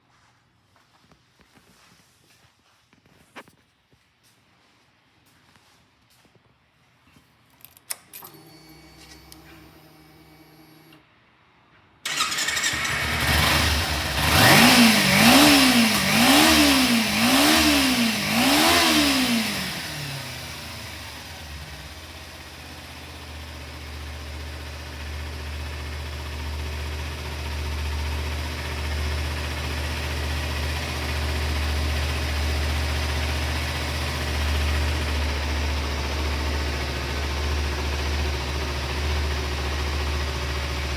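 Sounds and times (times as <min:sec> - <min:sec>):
starter whir: 0:07.9 - 0:11.0, 0:12.1 - 0:22.6
motorcycle engine revving and idling: 0:12.1 - 0:40.9.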